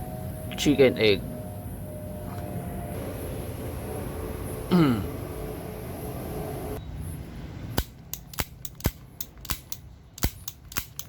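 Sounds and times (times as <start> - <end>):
steady hum: 0.0 - 10.1
sharp irregular clicks: 7.8 - 11.0.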